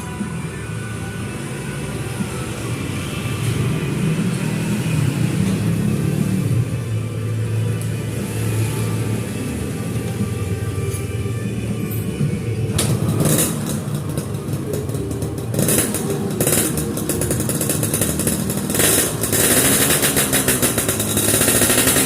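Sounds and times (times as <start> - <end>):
motorcycle engine revving: 2.0 - 10.8, 12.7 - 22.0.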